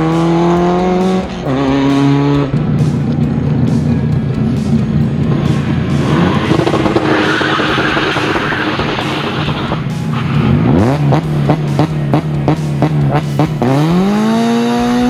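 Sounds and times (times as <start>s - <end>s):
background music: 0.0s - 15.0s
car engine revving: 0.0s - 15.0s
tyres skidding: 0.0s - 15.0s.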